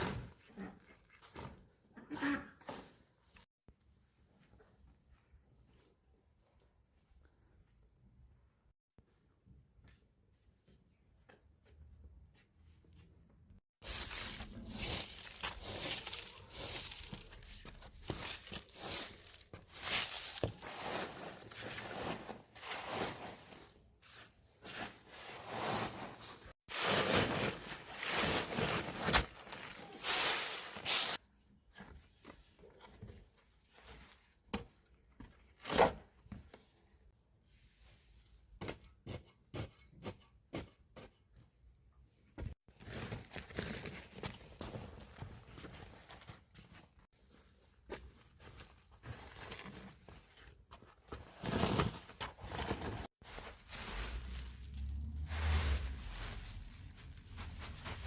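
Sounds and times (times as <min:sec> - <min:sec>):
rustling and crunching of dry material: 0:13.6 - 0:31.2, 0:42.5 - 0:58.0.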